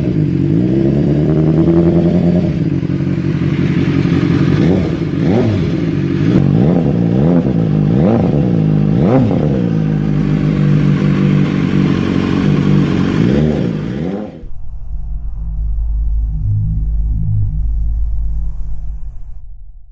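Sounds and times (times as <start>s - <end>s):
motorcycle engine idling and revving: 0.0s - 14.6s.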